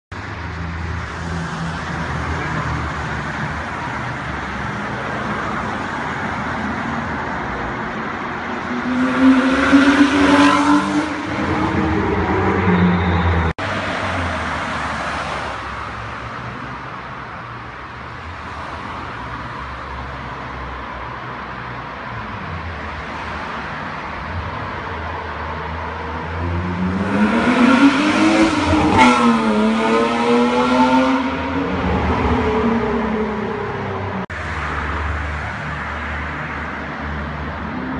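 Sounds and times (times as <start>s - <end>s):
car engine revving in a tunnel: 8.5s - 15.4s, 25.4s - 34.3s.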